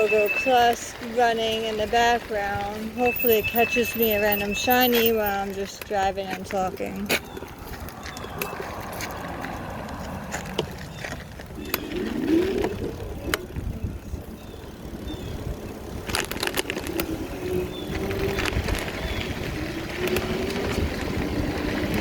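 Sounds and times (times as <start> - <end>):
vehicle rumbling along a trail: 0.0 - 22.0
clicks and rattles: 16.0 - 17.2.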